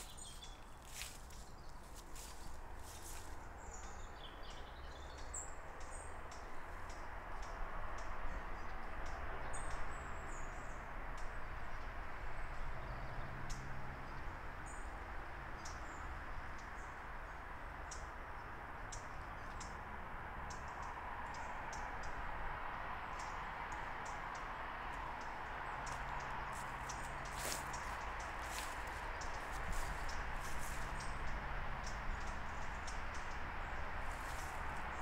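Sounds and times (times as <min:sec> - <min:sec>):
small birds chirping: 0:00.0 - 0:10.8, 0:23.0 - 0:35.0.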